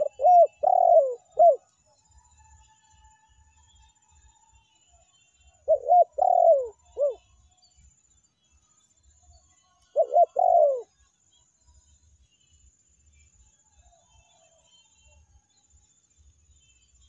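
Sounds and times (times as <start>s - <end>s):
dove cooing: 0.0s - 1.7s, 5.6s - 7.2s, 9.9s - 10.9s.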